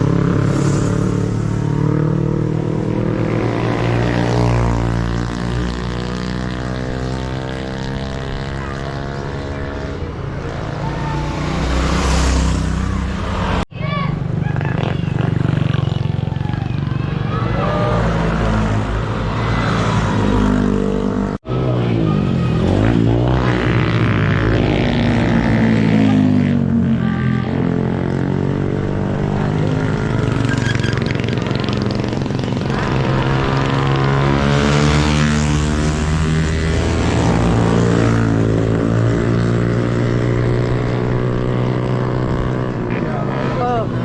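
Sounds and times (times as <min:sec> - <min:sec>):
motorcycle engine running: 0:14.2 - 0:17.4.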